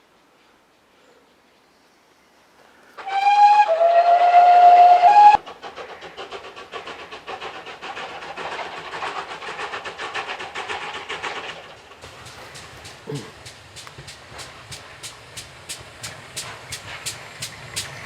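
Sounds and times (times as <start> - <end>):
train whistle: 3.0 - 5.4
moving train rhythmic beat: 3.2 - 18.0.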